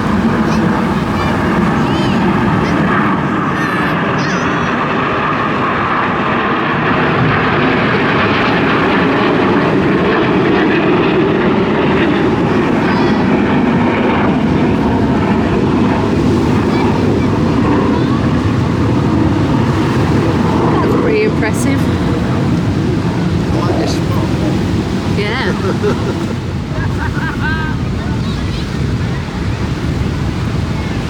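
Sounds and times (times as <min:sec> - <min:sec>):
aircraft flying over: 0:00.0 - 0:31.0.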